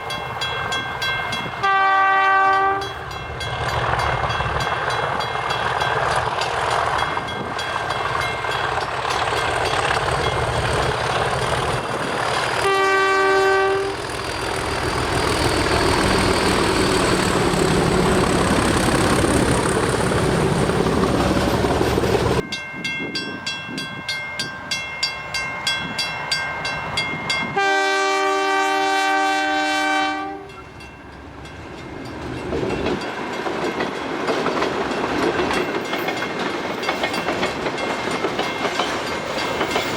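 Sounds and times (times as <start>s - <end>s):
freight train running loudly: 0.0s - 39.9s
train chord horn: 1.6s - 3.2s, 12.6s - 14.3s, 27.5s - 30.7s
wheels clicking over rail joints: 3.1s - 12.8s, 30.8s - 39.9s.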